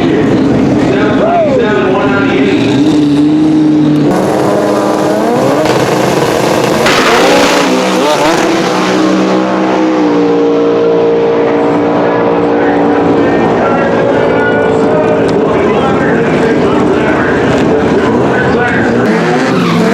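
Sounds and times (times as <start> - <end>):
race car engines idling and revving: 0.0 - 19.9
loud rushing noise: 4.1 - 19.9.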